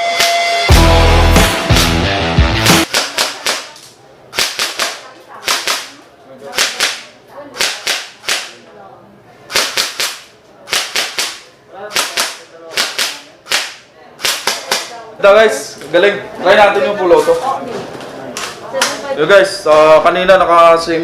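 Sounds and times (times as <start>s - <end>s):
airsoft rifle shots: 2.8s - 8.6s, 9.5s - 15.0s.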